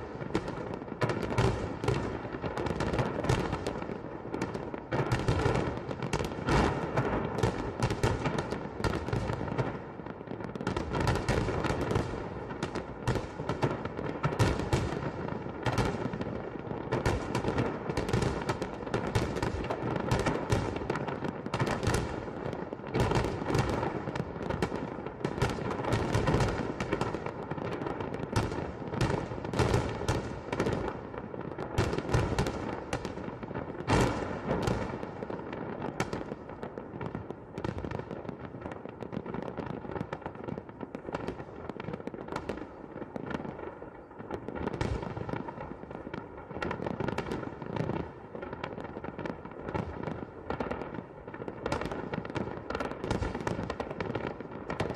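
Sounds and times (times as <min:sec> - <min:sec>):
fireworks banging: 0:31.8 - 0:43.6.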